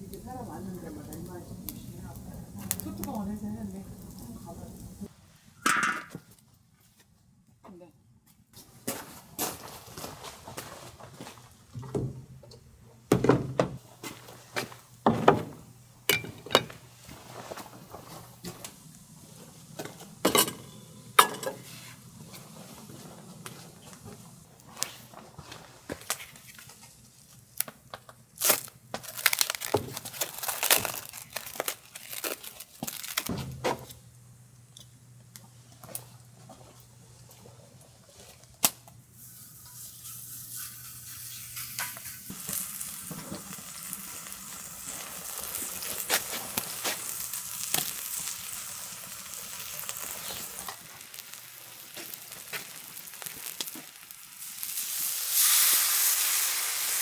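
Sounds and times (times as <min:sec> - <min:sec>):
food sizzling on griddle: 0:39.2 - 0:57.0.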